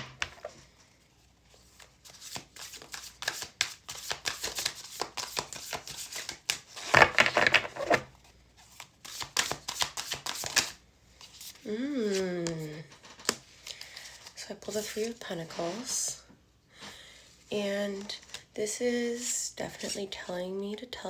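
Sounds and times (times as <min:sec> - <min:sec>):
cards being shuffled: 0:01.6 - 0:15.9.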